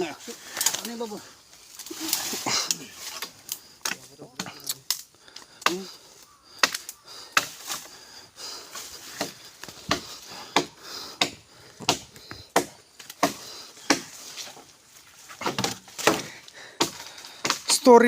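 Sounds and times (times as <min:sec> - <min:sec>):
wood knocking and snapping: 0:09.1 - 0:14.2, 0:15.3 - 0:17.8.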